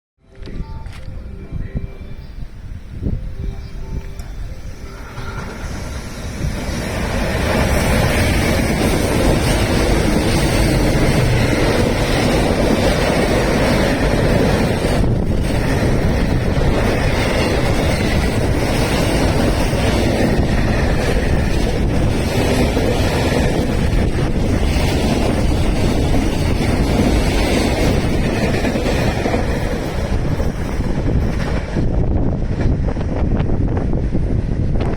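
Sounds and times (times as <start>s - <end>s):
wind noise on microphone: 0.2s - 34.9s
train wheels rushing on rails: 3.8s - 34.9s.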